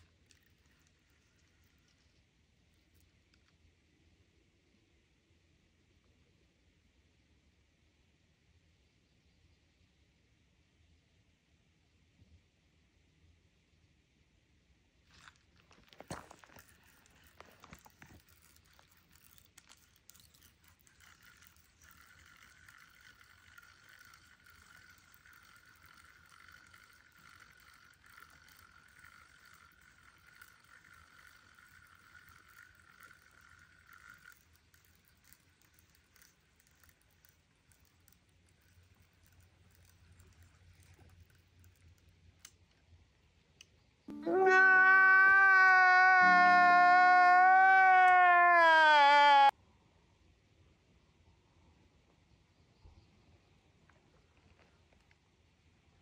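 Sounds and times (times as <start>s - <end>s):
fishing reel whirring: 0.0s - 3.2s, 16.0s - 42.5s.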